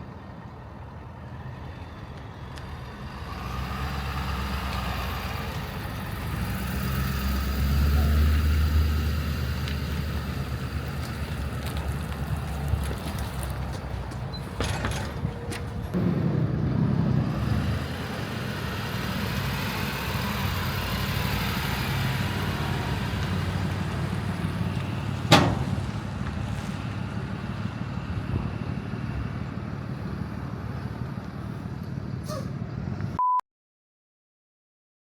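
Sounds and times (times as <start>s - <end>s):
road and wind noise: 0.0s - 33.2s
vehicle engine rumble: 0.0s - 33.2s
short high beep: 33.2s - 33.4s.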